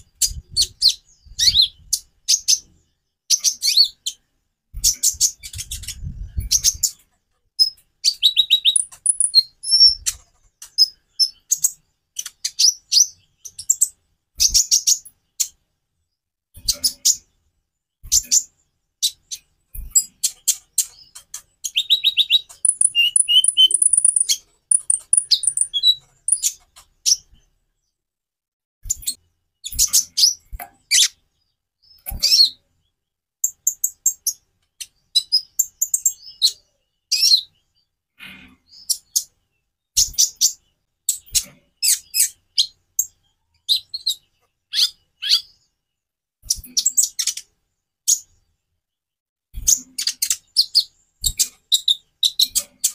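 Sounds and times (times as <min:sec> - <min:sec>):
sunbird singing chirps and trills: 0:07.6 - 0:15.6, 0:18.1 - 0:27.4, 0:38.6 - 0:45.7.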